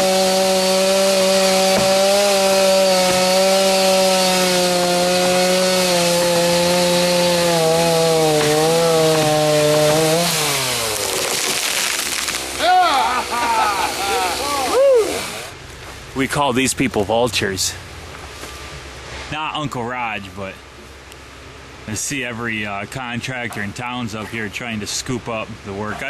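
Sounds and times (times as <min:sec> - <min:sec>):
chainsaw cutting a tree: 0:00.0 - 0:15.6.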